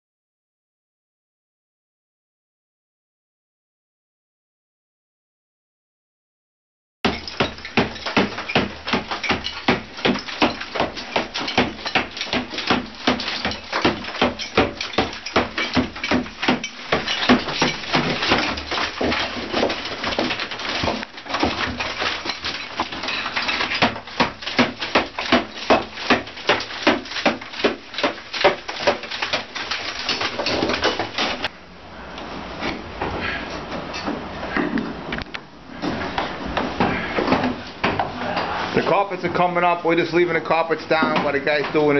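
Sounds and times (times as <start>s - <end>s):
rapid hammering and banging: 7.0s - 31.5s, 35.8s - 41.9s.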